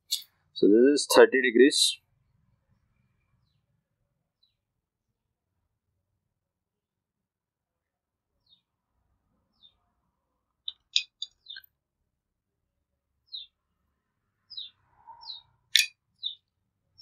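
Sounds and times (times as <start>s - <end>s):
small bird chirping: 4.4s - 4.6s, 8.4s - 8.7s, 9.5s - 9.8s, 10.6s - 11.8s, 13.2s - 13.6s, 14.5s - 17.0s.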